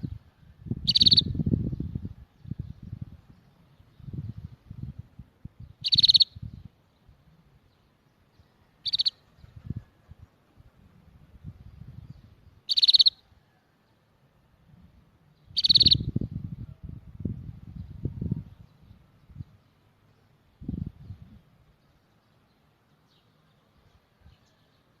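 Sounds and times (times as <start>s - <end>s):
songbird trilled chirps: 0.0s - 4.7s, 5.6s - 9.9s, 11.8s - 13.4s, 15.3s - 16.2s.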